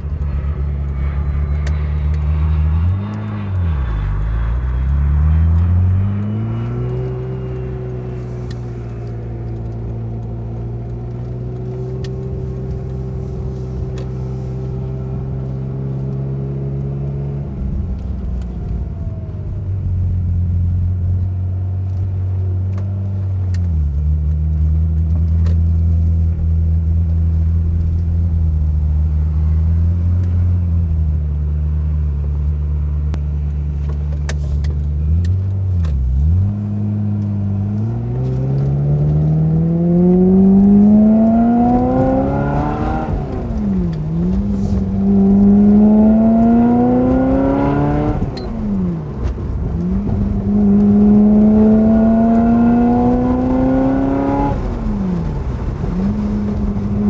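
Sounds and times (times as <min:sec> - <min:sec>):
sports car engine accelerating: 0:00.0 - 0:57.0.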